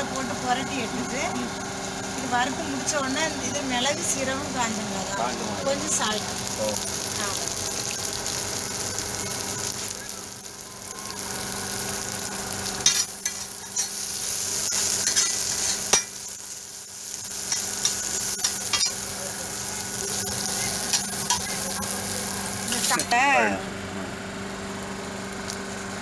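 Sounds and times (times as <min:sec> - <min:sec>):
food sizzling on a griddle: 0:00.0 - 0:23.6, 0:24.6 - 0:25.9
metal spatula scraping: 0:12.8 - 0:16.2.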